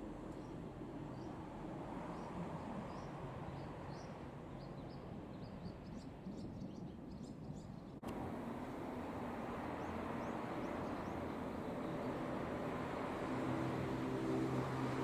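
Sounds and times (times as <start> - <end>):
small birds chirping: 7.2 - 15.0
low outdoor rumble: 8.0 - 15.0.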